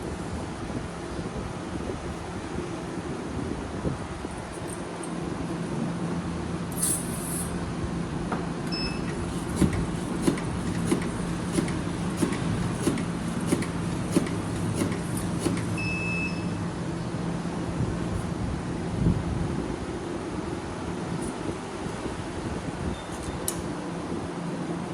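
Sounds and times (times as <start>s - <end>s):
short beep: 8.7s - 9.1s, 15.8s - 16.6s
cutter striking: 9.1s - 15.8s.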